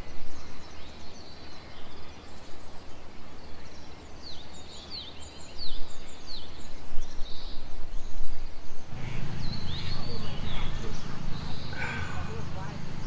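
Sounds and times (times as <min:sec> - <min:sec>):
small birds chirping: 0:00.0 - 0:13.0
steady low rumble: 0:08.9 - 0:13.0.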